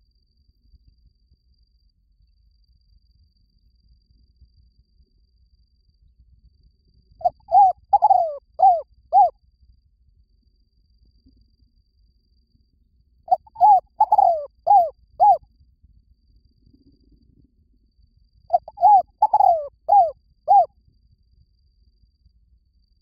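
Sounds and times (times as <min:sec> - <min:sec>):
dove cooing: 0:07.2 - 0:09.3, 0:13.3 - 0:15.4, 0:18.5 - 0:20.7.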